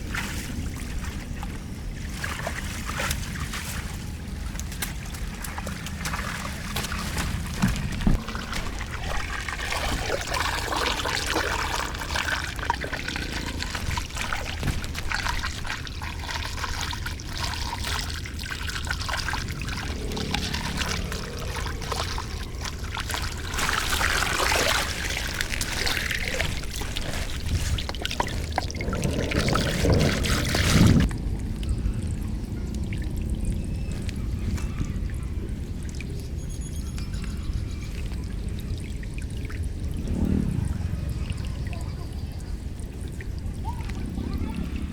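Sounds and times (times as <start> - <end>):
water pouring through drain grate: 2.2 - 36.4.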